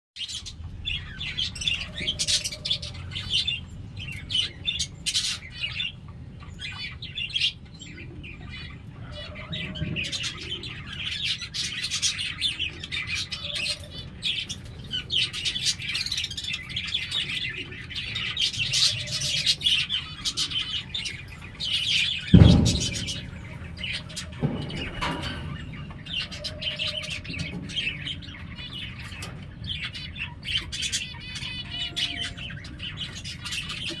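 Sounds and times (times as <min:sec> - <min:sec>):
pigeon chicks peeping: 0:00.2 - 0:34.0
low thump: 0:22.3 - 0:26.0.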